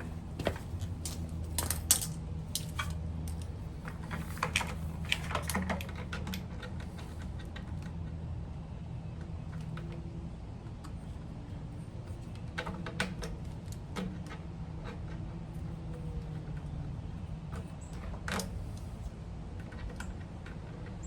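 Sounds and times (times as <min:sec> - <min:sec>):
small metallic clicks: 0:00.0 - 0:08.2
steady low hum: 0:00.0 - 0:21.0.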